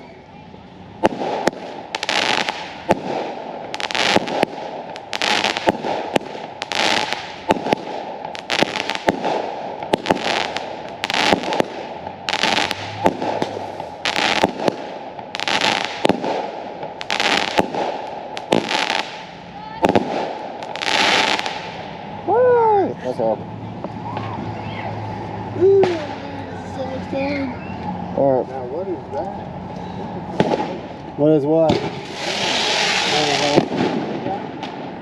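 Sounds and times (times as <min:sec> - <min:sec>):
fireworks popping and crackling: 0:01.0 - 0:22.0, 0:25.8 - 0:26.3, 0:30.3 - 0:31.0, 0:31.6 - 0:35.0.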